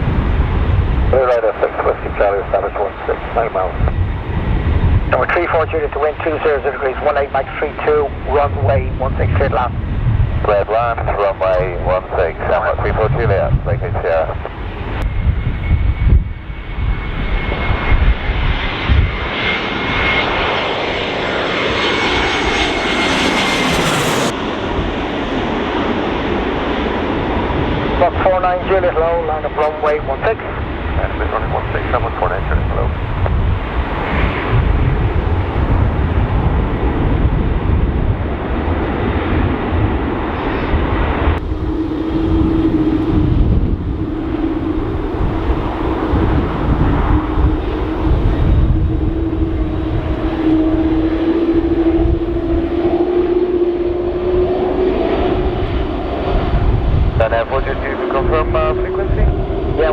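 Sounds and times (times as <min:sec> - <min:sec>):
jet airliner passing: 0:00.0 - 0:59.9
wind gusts buffeting microphone: 0:00.0 - 0:59.9
dull rumble with steady hum: 0:56.4 - 0:59.9.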